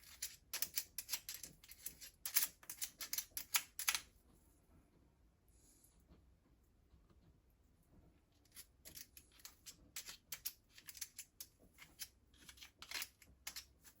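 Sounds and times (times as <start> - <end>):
small hard parts clicking: 0.0 - 4.1, 8.8 - 14.0
small parts scraping: 0.0 - 4.1, 8.4 - 14.0.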